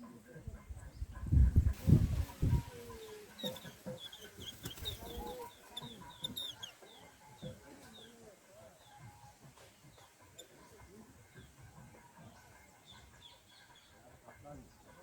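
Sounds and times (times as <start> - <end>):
chickens clucking: 0.0 - 15.0
high thin bird chirps: 2.2 - 8.1.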